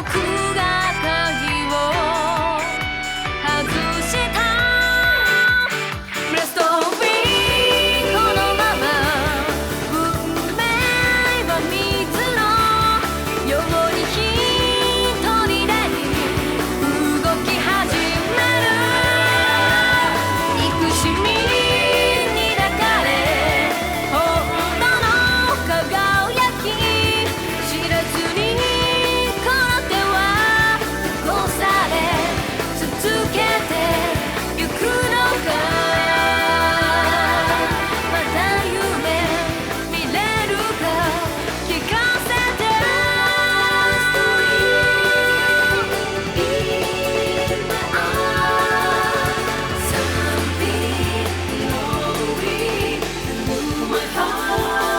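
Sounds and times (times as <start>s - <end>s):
pop-rock song with singing: 0.0s - 54.9s.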